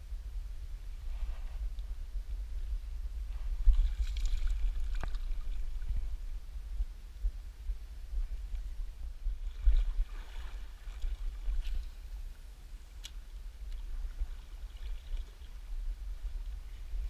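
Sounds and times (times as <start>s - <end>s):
steady low rumble: 0.0s - 17.0s
faint rush of water: 9.3s - 17.0s.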